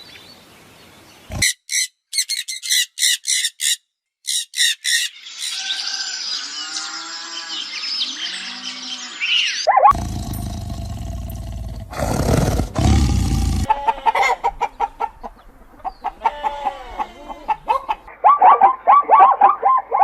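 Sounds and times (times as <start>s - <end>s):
chickens clucking: 13.6s - 18.3s.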